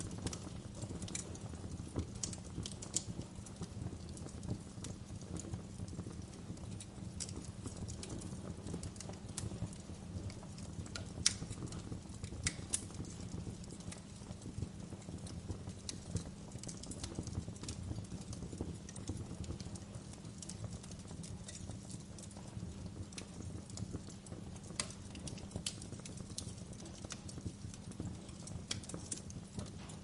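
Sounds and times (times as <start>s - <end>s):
fire pops and snaps: 0.0s - 30.0s
low rumble of flames: 0.0s - 30.0s.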